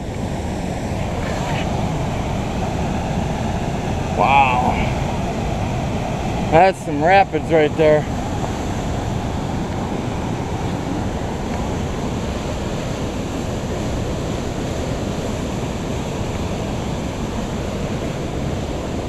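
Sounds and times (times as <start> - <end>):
river rapids roaring: 0.0 - 19.0.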